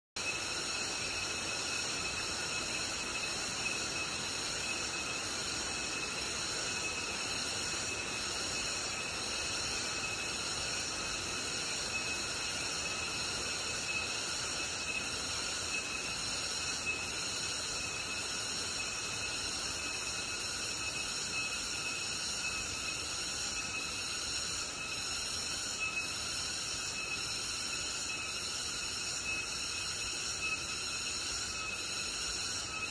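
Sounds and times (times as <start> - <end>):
insects buzzing chorus: 0.2 - 32.9.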